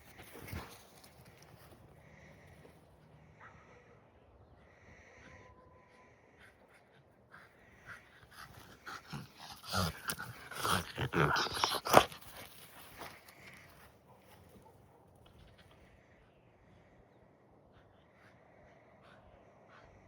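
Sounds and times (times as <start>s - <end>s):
dog noises: 6.4s - 15.8s.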